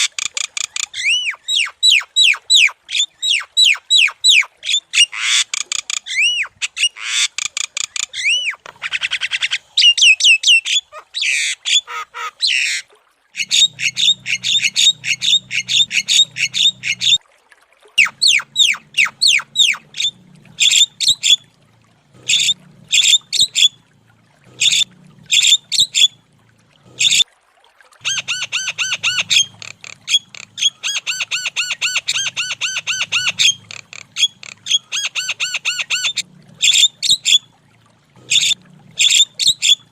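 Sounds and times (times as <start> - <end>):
myna bird squawks and whistles: 18.0 - 21.4, 28.0 - 37.4.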